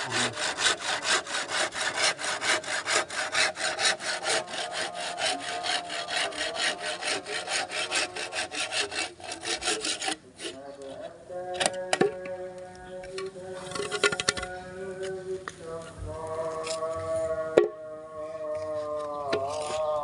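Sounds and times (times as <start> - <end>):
hand saw cutting wood: 0.0 - 10.6, 19.3 - 20.0.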